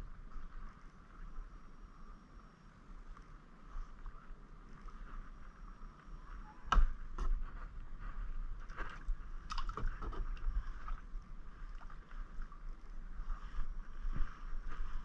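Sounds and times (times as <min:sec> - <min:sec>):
paddle knocks and splashes: 0:09.5 - 0:10.5.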